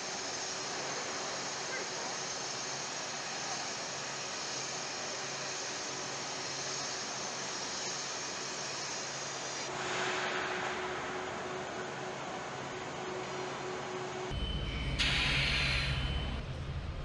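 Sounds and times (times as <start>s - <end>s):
hissing machinery and ventilation: 0.0s - 17.0s
low hum: 14.3s - 17.0s
steady tone: 14.3s - 17.0s.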